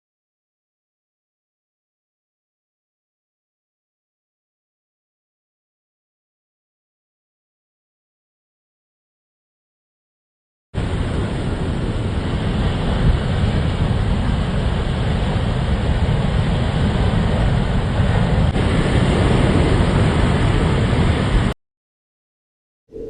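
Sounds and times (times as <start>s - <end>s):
loud low rushing noise: 10.8s - 21.6s.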